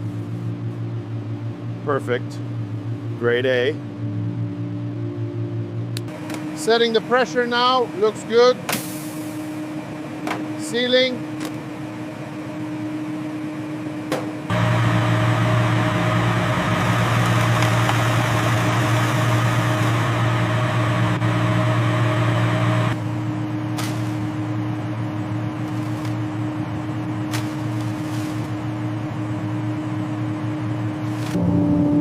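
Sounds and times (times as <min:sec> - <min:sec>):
sealing machine humming: 0:14.5 - 0:31.4.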